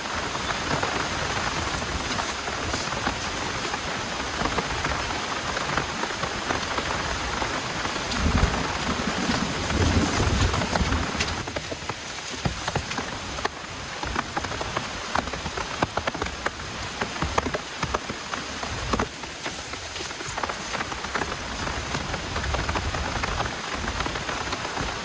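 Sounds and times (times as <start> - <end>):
heavy rain falling: 0.0 - 25.0
low rumble: 8.0 - 11.4.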